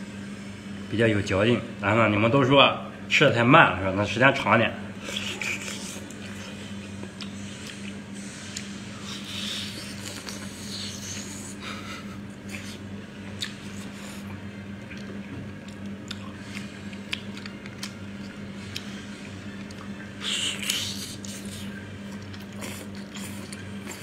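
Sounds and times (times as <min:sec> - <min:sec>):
steady low hum: 0:00.0 - 0:24.0
person chewing wetly: 0:05.0 - 0:11.6, 0:12.4 - 0:24.0.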